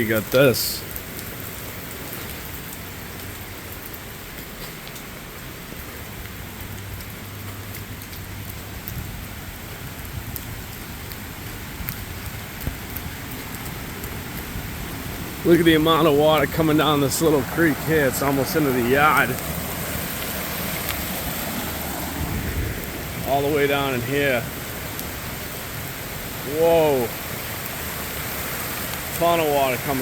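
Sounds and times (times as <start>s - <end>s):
floodwater rushing: 0.0s - 30.0s
heavy rain hiss: 0.0s - 30.0s.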